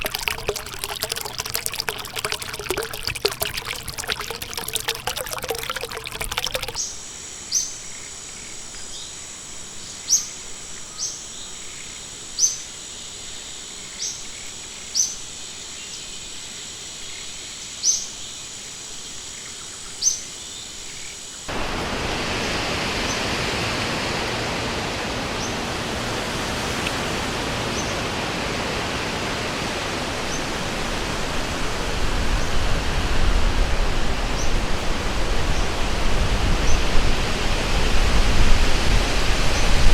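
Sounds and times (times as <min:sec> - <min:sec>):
water trickling: 0:00.0 - 0:06.8.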